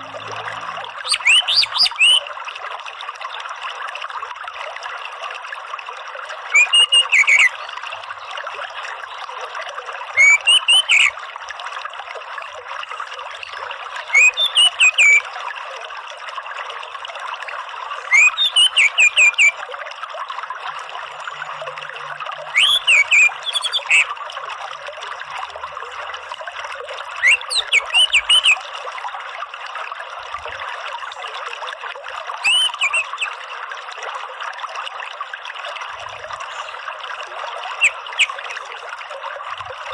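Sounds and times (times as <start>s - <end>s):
trickling running water: 0.0s - 39.9s
thrush whistled song: 1.0s - 2.3s, 6.5s - 7.7s, 10.2s - 11.2s, 13.4s - 15.3s, 18.0s - 19.6s, 22.5s - 24.1s, 27.2s - 28.7s, 32.4s - 33.4s, 37.8s - 38.7s.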